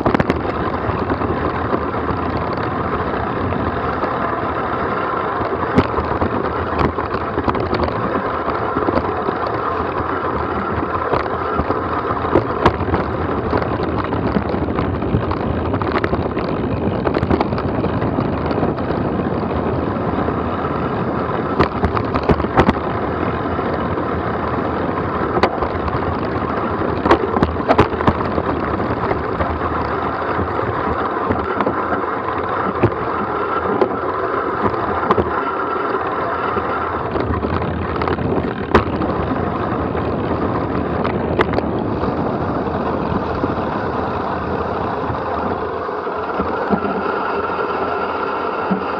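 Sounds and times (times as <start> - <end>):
tyres rolling over dirt: 0.0 - 48.9
wind on microphone: 0.0 - 48.9
knocks and rattles from bumps: 5.1 - 19.5, 21.5 - 23.0, 25.1 - 41.8.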